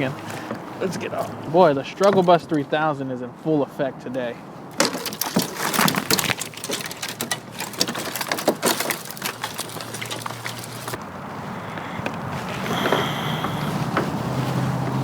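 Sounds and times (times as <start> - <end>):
twigs and leaves crackling: 4.2 - 15.0.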